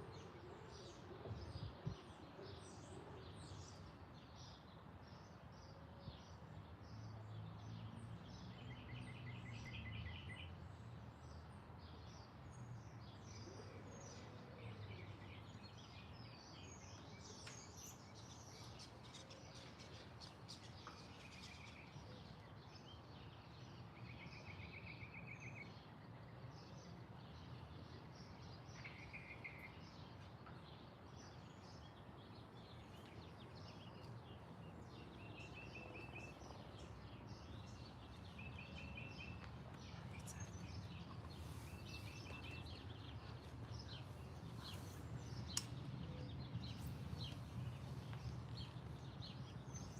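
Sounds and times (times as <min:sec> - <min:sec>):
songbirds chirping: 0:00.0 - 0:49.9.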